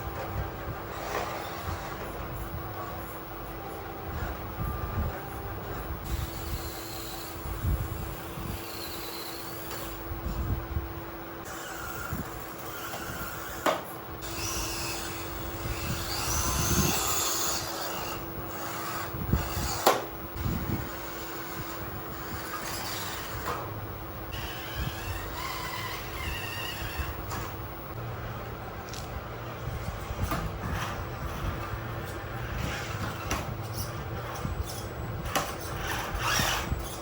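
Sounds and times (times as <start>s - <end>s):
faint hum: 0.0s - 37.0s
toy vehicles scraping loose material: 15.8s - 20.1s, 21.4s - 23.7s, 30.6s - 37.0s.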